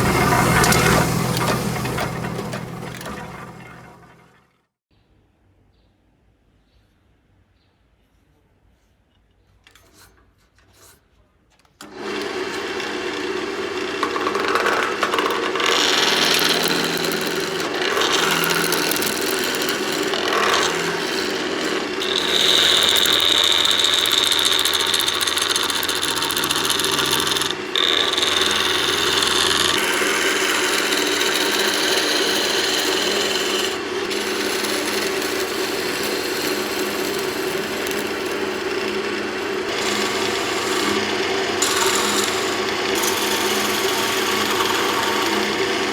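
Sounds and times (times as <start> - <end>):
abrasive grinding noise: 0.0 - 4.4, 14.0 - 45.9
grinding machine motor humming: 0.0 - 4.4, 15.5 - 45.9.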